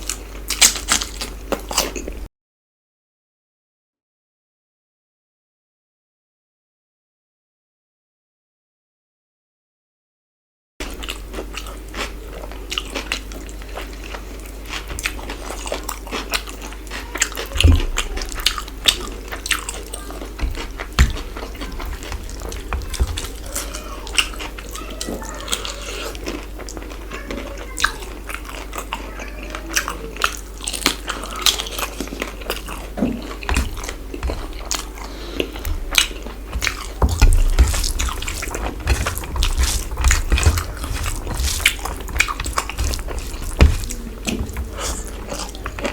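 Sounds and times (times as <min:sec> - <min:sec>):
wet chewing and crunching: 0:00.0 - 0:02.3, 0:10.8 - 0:45.9
steady low hum: 0:30.3 - 0:45.9.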